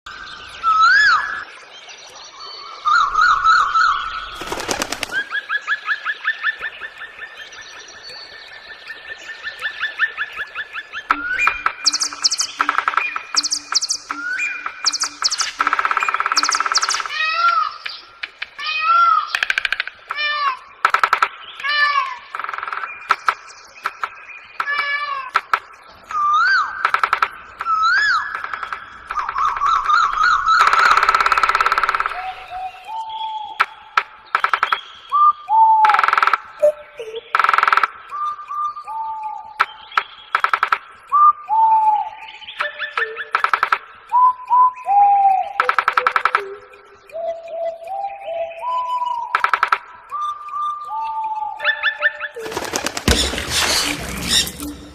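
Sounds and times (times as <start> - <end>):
harsh rattling bird calls: 2.9 - 7.8, 9.7 - 32.6, 52.2 - 54.9
sharp clicks: 4.4 - 5.3, 11.1 - 18.6, 19.3 - 20.2, 20.8 - 21.7, 22.3 - 26.2, 26.8 - 29.7, 30.5 - 32.3, 33.6 - 35.2, 35.8 - 38.2, 39.6 - 41.2, 42.6 - 44.2, 45.6 - 47.2, 49.0 - 50.2, 52.4 - 54.9
bird whistled notes: 11.1 - 17.5, 34.7 - 37.3, 47.1 - 54.9.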